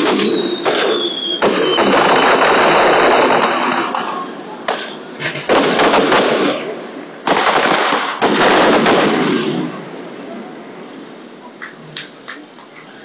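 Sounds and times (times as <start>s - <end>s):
firework shells bursting: 0.0s - 9.8s
firework crackle: 0.0s - 13.0s.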